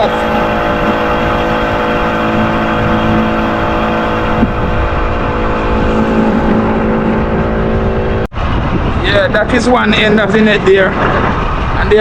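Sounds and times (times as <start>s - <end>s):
motor humming: 0.0s - 8.9s.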